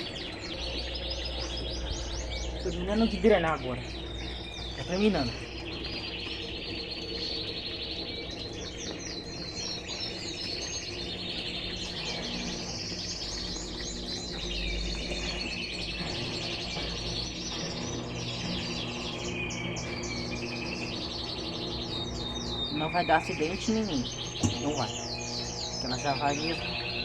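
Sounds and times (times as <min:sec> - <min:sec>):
washing machine drain pump hum: 0:00.0 - 0:25.1
birds chirping: 0:00.0 - 0:27.0.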